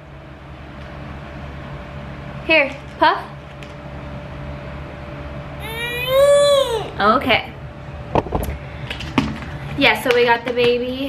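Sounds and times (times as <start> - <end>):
baby squealing: 5.6 - 7.0.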